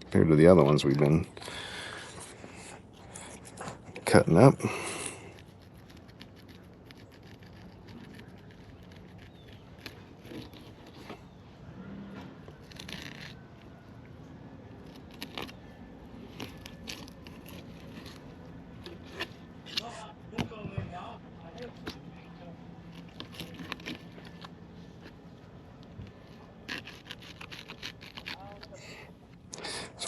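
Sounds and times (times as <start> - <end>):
low steady hum: 0.0 - 30.0
knife cutting fish: 26.1 - 28.7.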